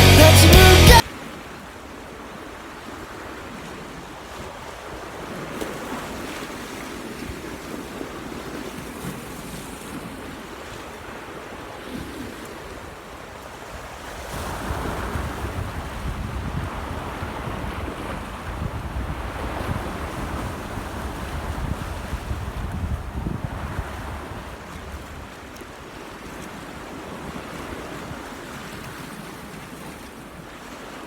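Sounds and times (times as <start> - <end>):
wind buffeting microphone: 14.4 - 25.3.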